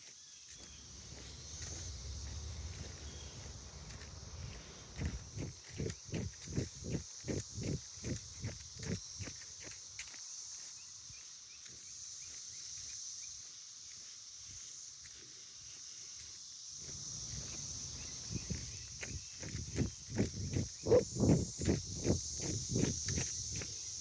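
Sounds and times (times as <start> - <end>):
insects buzzing: 0.0 - 24.0
jogging footsteps: 0.6 - 10.2, 16.9 - 24.0.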